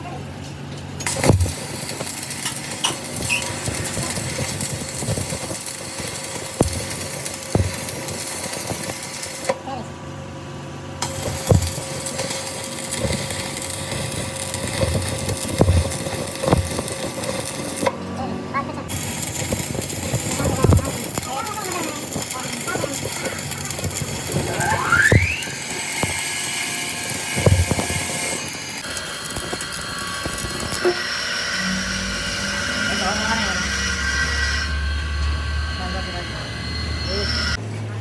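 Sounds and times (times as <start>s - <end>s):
machine humming: 10.8s - 37.6s.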